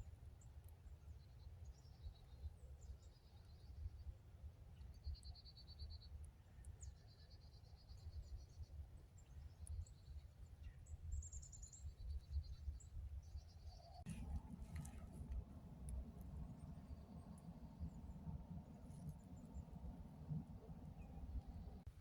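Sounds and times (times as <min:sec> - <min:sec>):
low rumble: 0:14.1 - 0:22.0.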